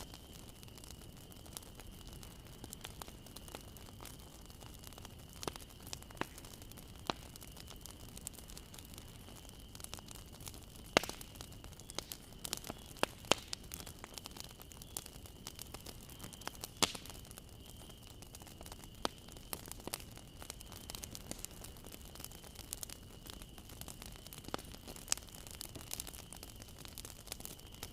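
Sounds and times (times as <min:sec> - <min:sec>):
bonfire crackling and popping: 0:00.0 - 0:27.9
low steady hiss: 0:00.0 - 0:27.9.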